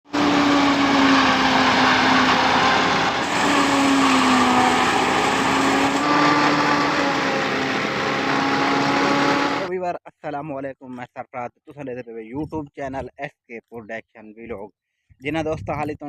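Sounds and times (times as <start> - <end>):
machine engine running: 0.1 - 9.7.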